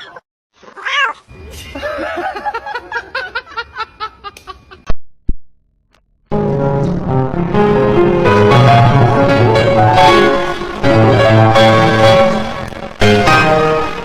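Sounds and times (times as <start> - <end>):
person laughing: 1.5 - 4.9
piano music: 6.3 - 14.0.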